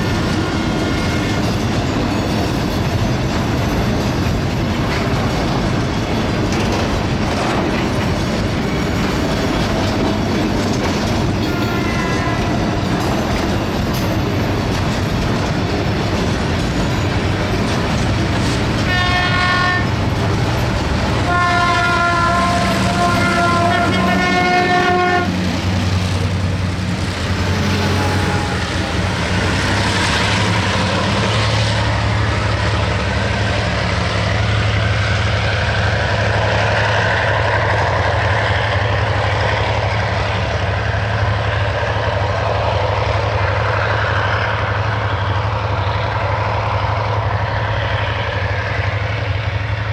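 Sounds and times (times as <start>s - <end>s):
passing train rumble: 0.0s - 49.9s
train horn blasts: 11.4s - 12.8s, 18.8s - 20.0s, 21.1s - 25.5s, 27.6s - 29.1s.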